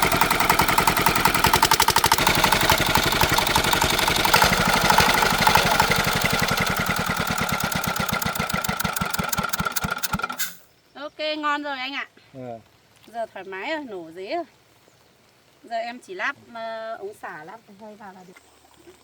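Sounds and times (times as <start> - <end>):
tractor engine firing pulses: 0.0 - 10.6.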